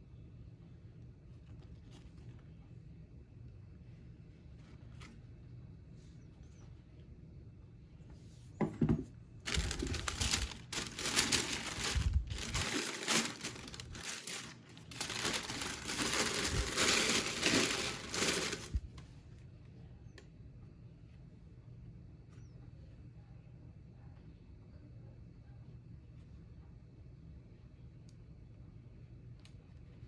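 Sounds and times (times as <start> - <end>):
packaging crinkling: 9.5 - 18.8.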